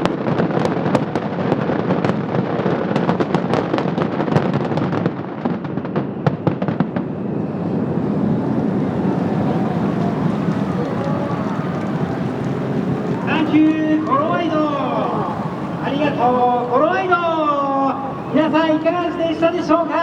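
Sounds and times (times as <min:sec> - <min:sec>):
fireworks cracking and banging: 0:00.0 - 0:20.0
crowd voices: 0:06.9 - 0:20.0.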